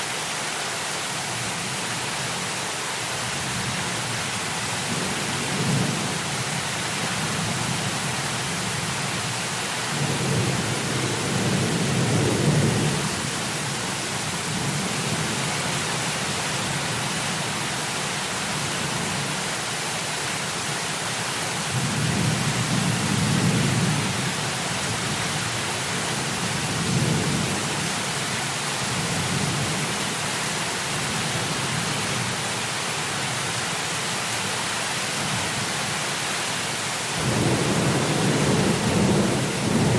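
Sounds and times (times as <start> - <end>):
heavy rain: 0.0 - 39.9
thunder rumbling: 37.2 - 39.9.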